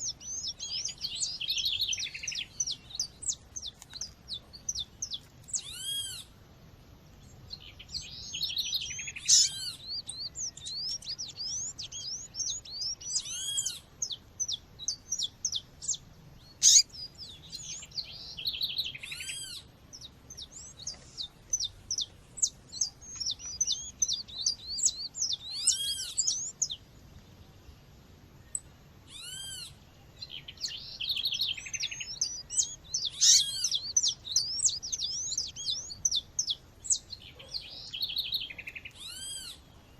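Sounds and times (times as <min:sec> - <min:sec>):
background birdsong: 0:00.0 - 0:39.9
seedeater calling: 0:16.6 - 0:16.8, 0:31.2 - 0:36.5.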